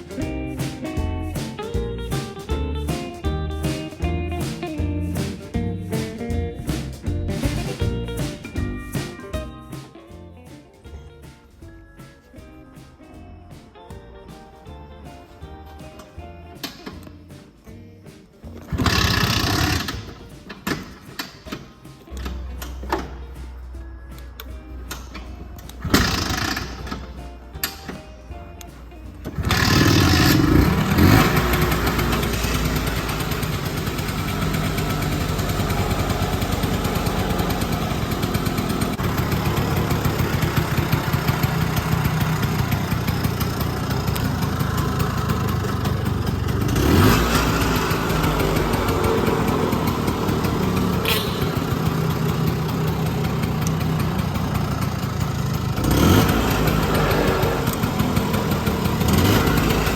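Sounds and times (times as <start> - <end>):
scooter engine revving: 18.6 - 23.2, 24.9 - 28.1, 29.2 - 59.9
scooter engine starting and idling: 18.6 - 59.9.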